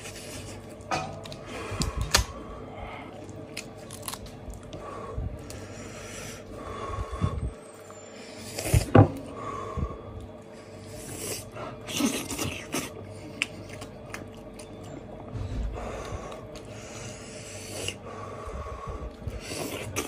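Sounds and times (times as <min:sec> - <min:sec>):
hands pulling meat apart: 0:00.7 - 0:02.4, 0:03.2 - 0:04.8
close chewing and mouth smacks: 0:11.0 - 0:15.1.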